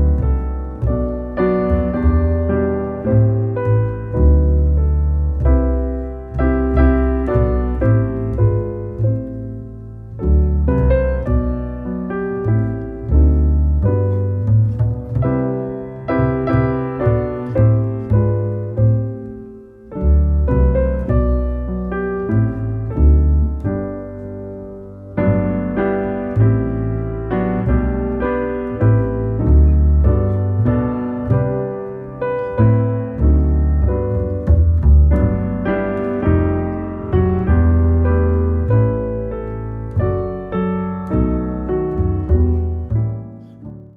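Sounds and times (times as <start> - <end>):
slow piano piece: 0.0 - 43.9.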